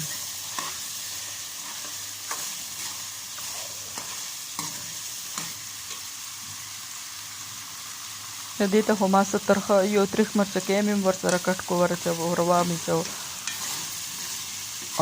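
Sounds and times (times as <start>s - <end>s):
spoon scraping a pan: 0.0s - 6.2s, 11.2s - 15.0s
food sizzling in oil: 0.0s - 15.0s.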